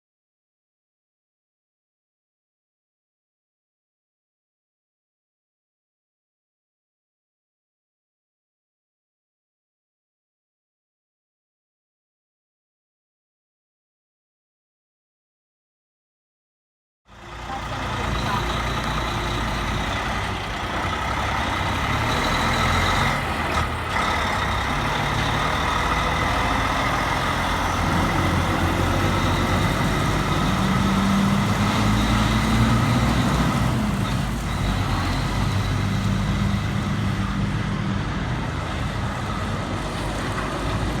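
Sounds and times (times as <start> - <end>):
diesel truck engine running: 17.1 - 41.0.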